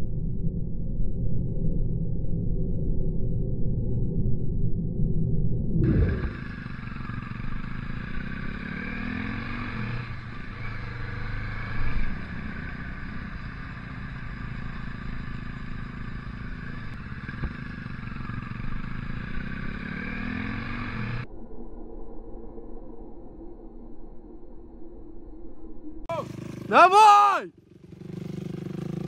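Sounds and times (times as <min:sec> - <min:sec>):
wind and road noise: 0:00.0 - 0:21.3
motorcycle engine revving: 0:05.8 - 0:21.2, 0:26.1 - 0:29.0.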